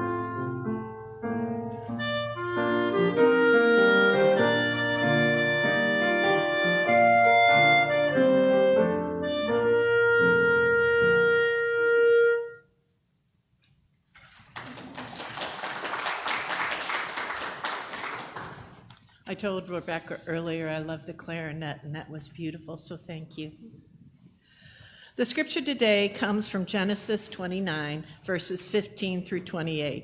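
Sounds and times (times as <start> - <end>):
piano accompaniment: 0.0 - 12.6
clarinet melody: 0.0 - 12.9
congregation applauding: 14.1 - 19.0.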